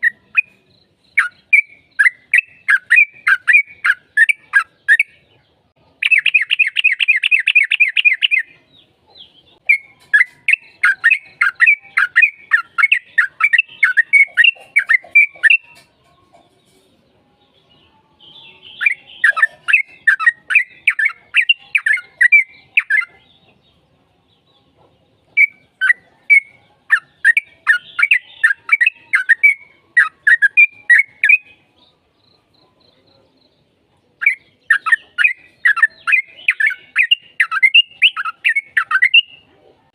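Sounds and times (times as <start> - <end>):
bird singing bubbly chattering notes: 0.0 - 5.2, 6.0 - 8.5, 9.6 - 15.7, 18.7 - 23.1, 34.2 - 39.4.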